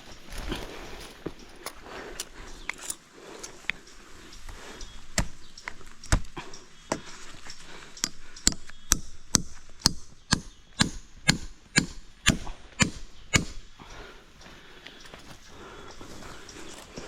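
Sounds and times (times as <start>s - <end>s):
chopping strokes: 8.0s - 13.6s.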